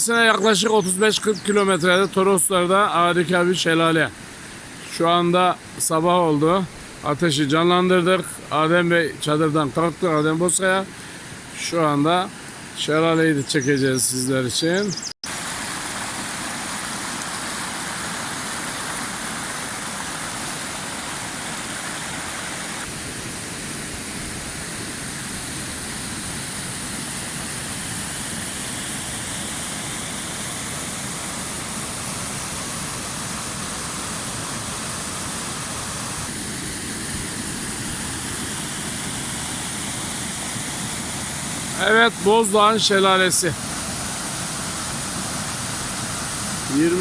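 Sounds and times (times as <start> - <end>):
waterfall pouring: 15.2 - 23.0, 24.6 - 47.0.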